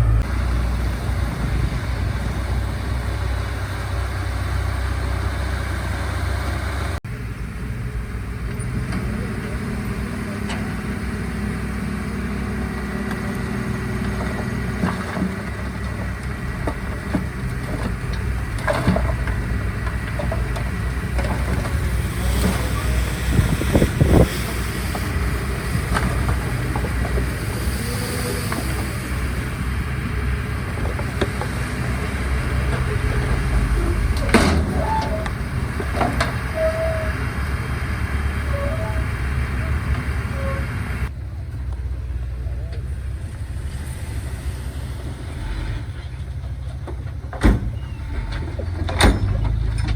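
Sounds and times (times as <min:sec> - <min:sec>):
heavy machinery diesel engines: 0:00.0 - 0:49.9
metallic knocks and clanks: 0:32.6 - 0:36.7, 0:46.4 - 0:49.9.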